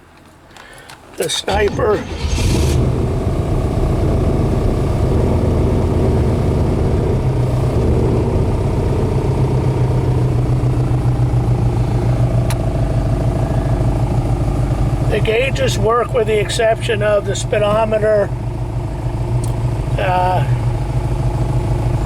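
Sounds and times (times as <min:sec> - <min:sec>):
car engine running: 0:00.6 - 0:22.0.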